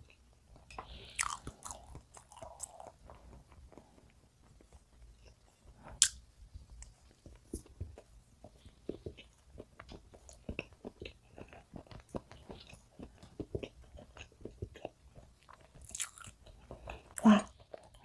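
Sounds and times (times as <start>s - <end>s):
chewing with wet mouth clicks: 6.8s - 18.0s.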